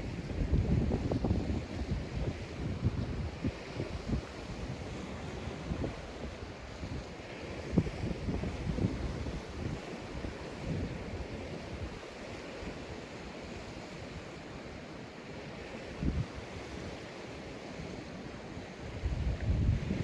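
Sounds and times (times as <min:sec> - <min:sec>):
wind buffeting microphone: 0:00.0 - 0:12.2, 0:16.0 - 0:17.0, 0:18.8 - 0:20.0
sea waves breaking on beach: 0:00.0 - 0:20.0.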